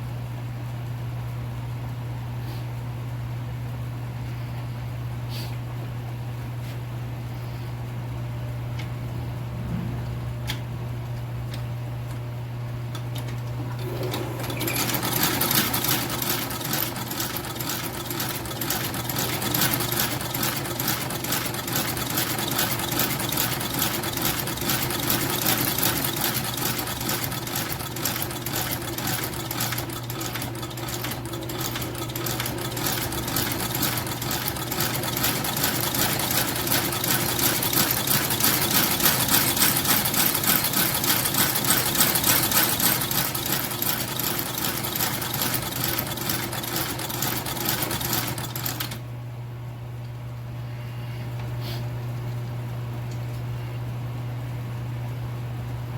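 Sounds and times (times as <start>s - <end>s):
steady low hum: 1.8s - 14.5s
sewing machine needle clatter: 12.9s - 49.0s.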